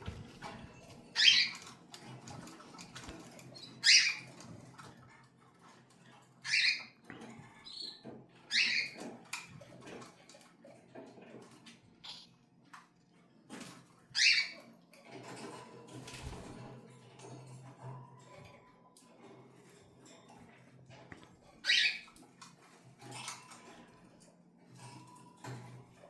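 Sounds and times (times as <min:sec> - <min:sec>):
faint clicks and rustling: 0:00.0 - 0:08.4
cockatiel calls: 0:01.2 - 0:01.7, 0:03.8 - 0:04.3, 0:06.5 - 0:06.9, 0:08.5 - 0:09.0, 0:12.0 - 0:12.3, 0:14.2 - 0:14.6, 0:21.6 - 0:22.1.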